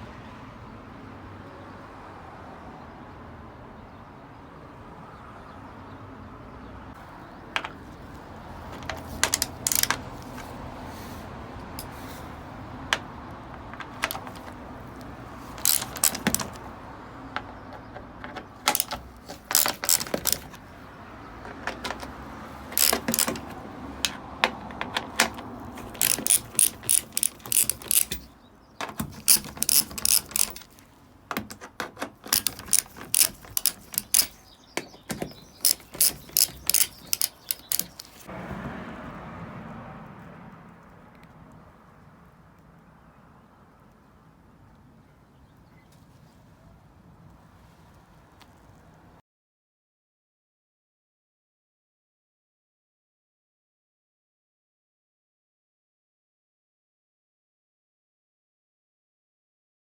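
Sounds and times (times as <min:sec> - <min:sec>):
ratchet wrench clicking: 0:08.6 - 0:10.5, 0:12.9 - 0:16.6, 0:18.3 - 0:20.6, 0:21.4 - 0:38.3.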